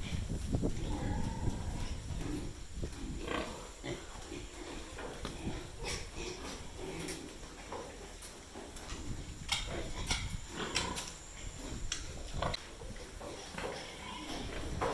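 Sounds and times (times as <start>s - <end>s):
pigs grunting and squealing: 0.0s - 8.2s, 8.9s - 14.9s.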